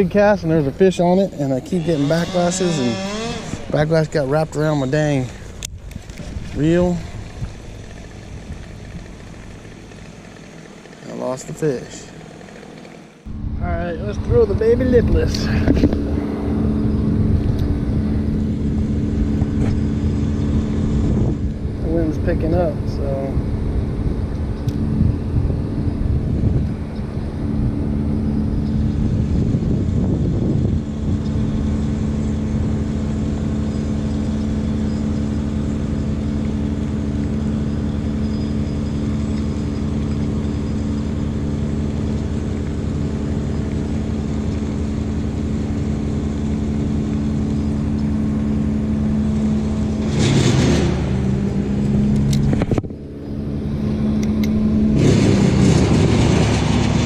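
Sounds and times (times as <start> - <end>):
wind buffeting microphone: 0.0 - 9.8, 13.3 - 38.2, 50.9 - 57.0
steady mechanical hum: 0.0 - 57.0.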